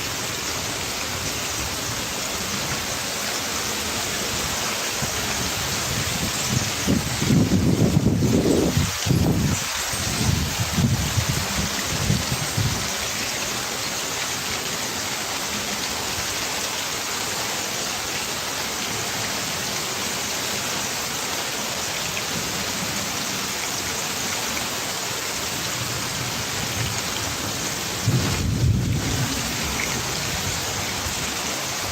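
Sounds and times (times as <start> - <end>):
heavy rain hissing: 0.0 - 31.9.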